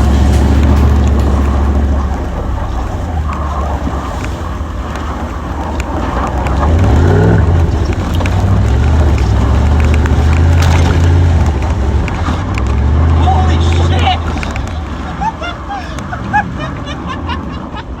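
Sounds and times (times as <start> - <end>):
truck engine accelerating: 0.0 - 18.0.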